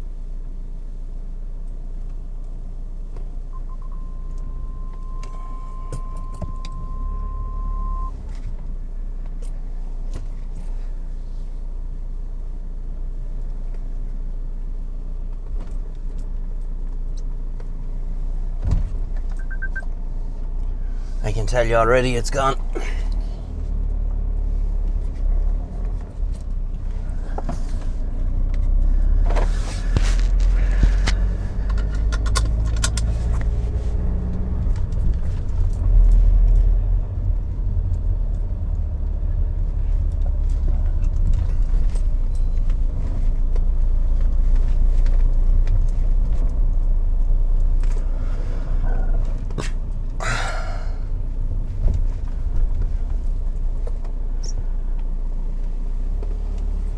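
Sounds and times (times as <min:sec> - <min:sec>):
car road and engine rumble: 0:00.0 - 0:56.9
short rustle: 0:29.2 - 0:31.6.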